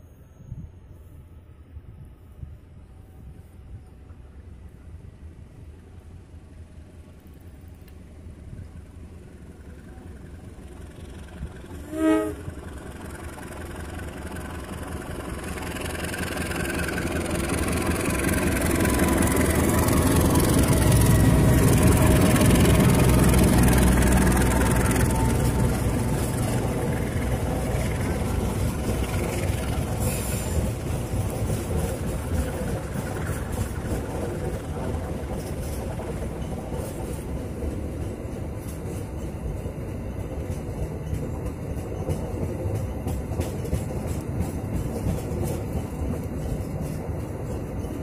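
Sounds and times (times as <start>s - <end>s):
train wheels on rails: 0.0s - 48.0s
locomotive engine rumble: 1.2s - 48.0s
locomotive horn blast: 11.8s - 12.6s.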